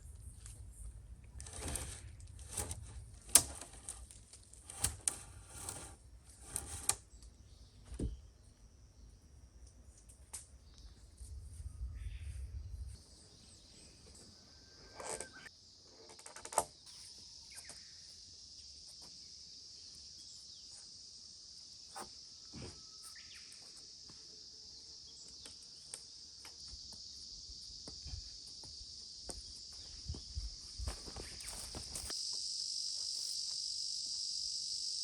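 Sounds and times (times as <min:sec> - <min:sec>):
insects trilling: 0:13.4 - 0:35.0.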